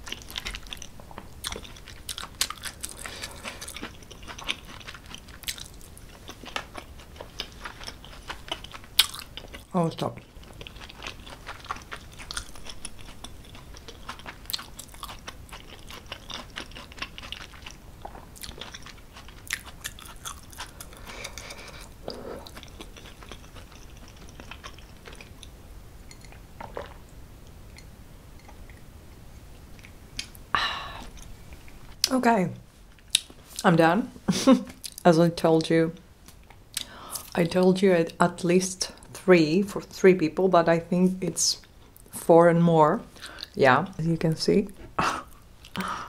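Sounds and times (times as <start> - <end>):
person chewing pasta: 0.0 - 28.9, 29.6 - 31.8
person sipping water: 20.7 - 22.7, 26.2 - 27.0.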